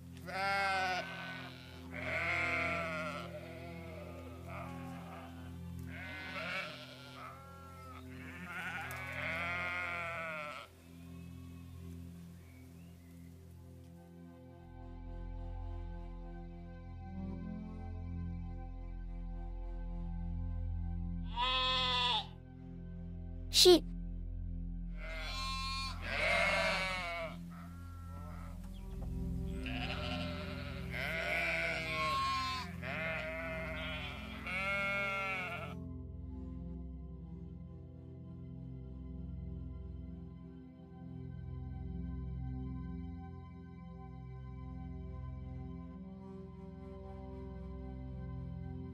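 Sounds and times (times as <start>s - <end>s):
sheep bleating: 0.2s - 10.7s, 21.3s - 22.4s, 25.0s - 28.6s, 29.5s - 35.8s.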